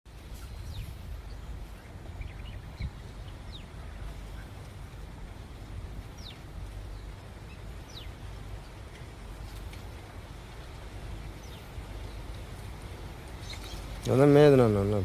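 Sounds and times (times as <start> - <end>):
outdoor background noise: 0.0 - 15.0
bird chirps: 6.2 - 8.2, 13.4 - 14.0.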